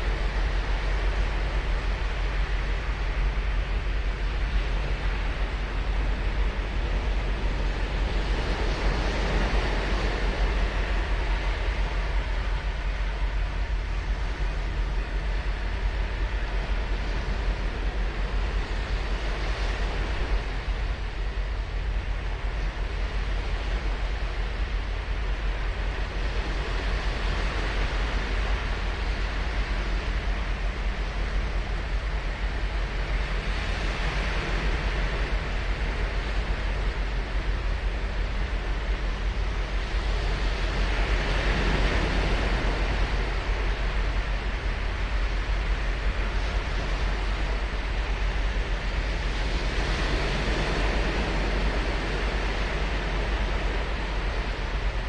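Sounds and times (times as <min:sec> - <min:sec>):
constant low rumble: 0:00.0 - 0:55.0
ocean surf breaking on beach: 0:38.3 - 0:55.0.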